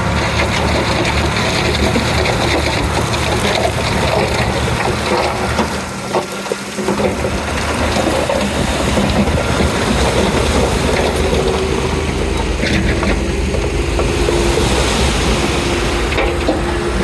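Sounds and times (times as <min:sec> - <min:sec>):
bulldozer diesel engine clattering: 0:00.0 - 0:17.0.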